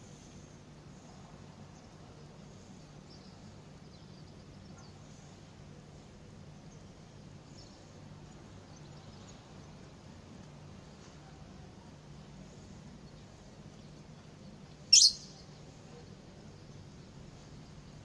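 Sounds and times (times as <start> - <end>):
small birds chirping: 12.6 - 18.0.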